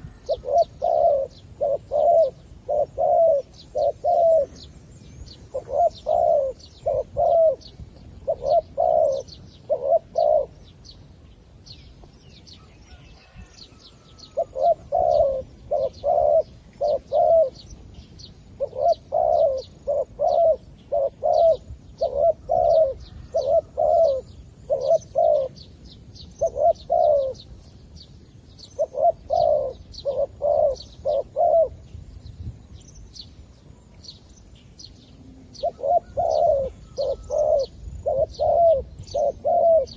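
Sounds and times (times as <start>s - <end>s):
dove cooing in staccato notes: 0.0s - 4.6s, 5.5s - 10.6s, 14.2s - 17.7s, 18.6s - 25.6s, 26.4s - 27.4s, 28.8s - 31.8s, 35.4s - 39.9s
small birds chirping faintly: 0.0s - 39.9s.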